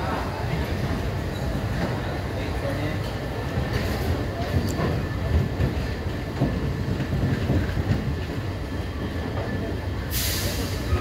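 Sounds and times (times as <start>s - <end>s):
train coach rumbling on track: 0.0s - 11.0s
short burst of hiss: 10.1s - 11.0s.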